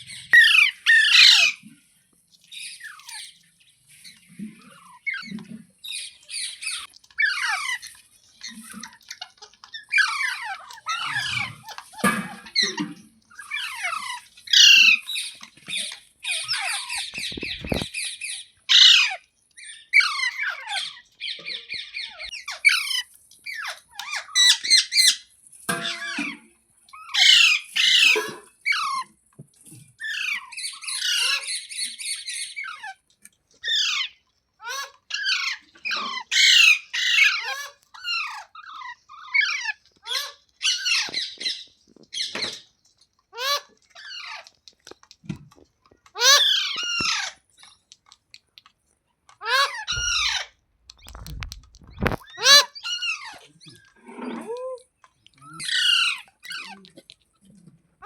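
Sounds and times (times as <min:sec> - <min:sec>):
parrot squawking: 0:00.4 - 0:01.6, 0:08.8 - 0:19.2, 0:19.9 - 0:25.2, 0:27.0 - 0:29.1, 0:30.0 - 0:31.8, 0:33.6 - 0:42.5, 0:43.3 - 0:44.5, 0:46.1 - 0:47.4, 0:49.4 - 0:54.5, 0:55.4 - 0:57.0
parrot fast chattering: 0:49.4 - 0:53.9.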